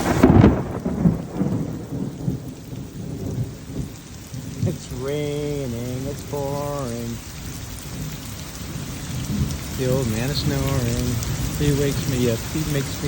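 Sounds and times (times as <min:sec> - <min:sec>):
steady rain: 0:00.0 - 0:13.0
thunder rumbling: 0:00.0 - 0:13.0
low voice-like tones: 0:04.6 - 0:07.3, 0:09.8 - 0:13.0.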